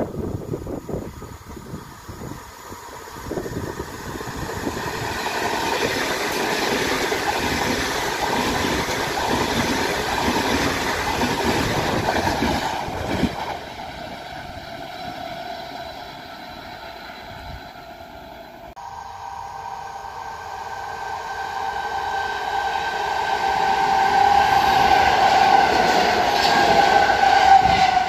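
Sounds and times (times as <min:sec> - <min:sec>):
train wheels rushing on rails: 0:00.0 - 0:28.0
faint steady tones: 0:14.1 - 0:23.0.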